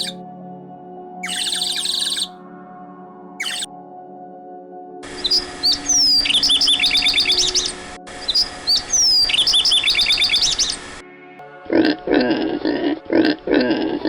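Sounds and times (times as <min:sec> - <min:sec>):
songbird chirps and trills: 0:00.0 - 0:00.2, 0:01.2 - 0:02.4, 0:03.4 - 0:03.7, 0:05.0 - 0:11.0.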